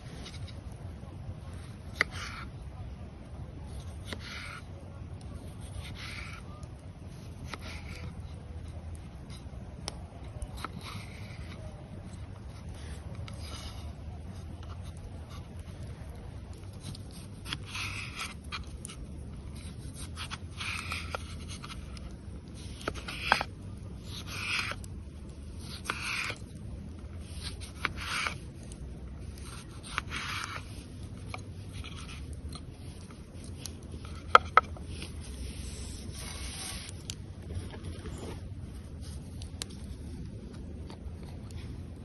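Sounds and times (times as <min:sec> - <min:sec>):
rough scraping strokes: 0:01.5 - 0:02.6, 0:03.7 - 0:04.7, 0:16.5 - 0:40.0.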